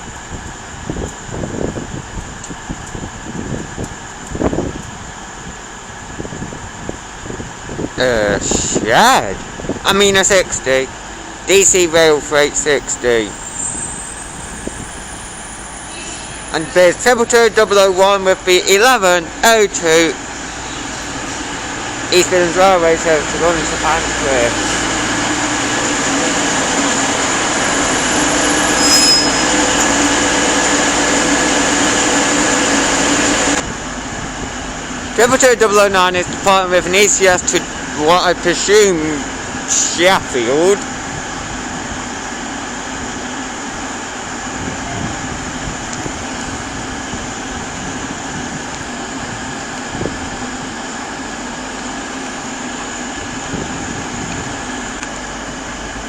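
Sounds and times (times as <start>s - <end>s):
diesel train passing: 0.0s - 56.0s
short high squeal: 13.3s - 17.0s, 28.4s - 30.6s.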